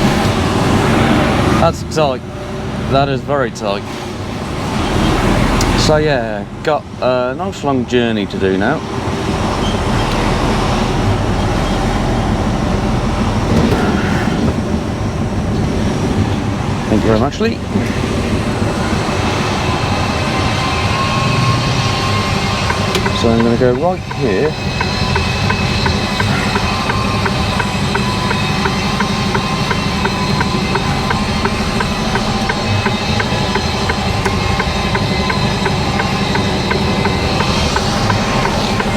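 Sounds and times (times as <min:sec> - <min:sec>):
diesel engine running: 0:00.0 - 0:38.9
road noise rumble and hiss: 0:00.0 - 0:38.9
turn indicator ticking: 0:21.5 - 0:38.9.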